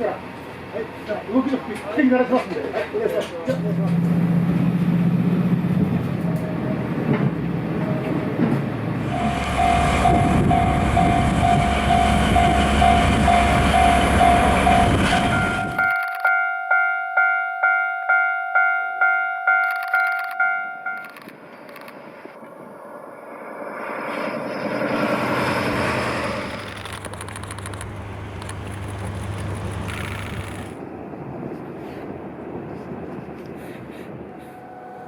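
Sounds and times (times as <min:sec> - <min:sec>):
passing train rumble: 0:03.5 - 0:15.9, 0:22.5 - 0:35.0.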